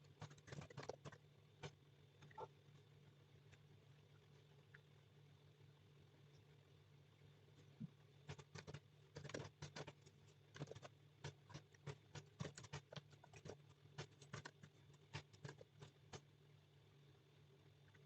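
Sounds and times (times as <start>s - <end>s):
typing on a keyboard: 8.3s - 16.2s.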